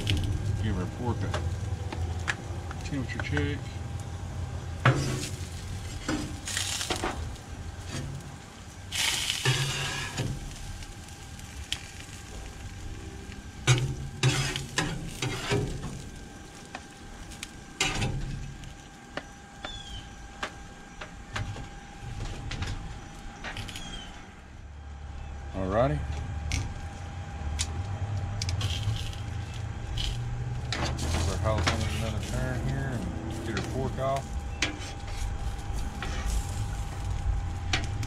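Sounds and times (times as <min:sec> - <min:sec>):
vegetables sizzling on a griddle: 0:04.8 - 0:20.1, 0:28.6 - 0:38.0
metal spatula scraping griddle: 0:04.9 - 0:07.1, 0:09.0 - 0:10.5, 0:13.6 - 0:16.0, 0:17.8 - 0:18.5, 0:28.6 - 0:37.1.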